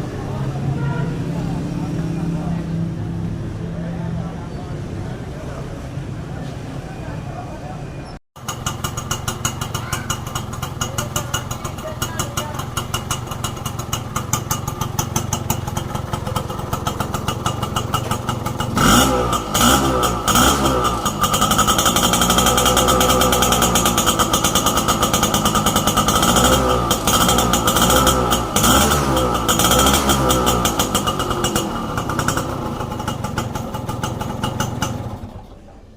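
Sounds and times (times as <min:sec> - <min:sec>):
two-stroke engine idling and revving: 0:00.0 - 0:05.9, 0:08.4 - 0:35.7.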